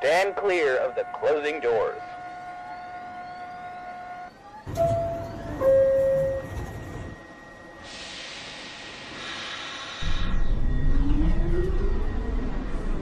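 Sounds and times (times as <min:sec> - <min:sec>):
subway train rumble: 0:00.0 - 0:13.0
two-tone door-closing chime: 0:04.6 - 0:07.4.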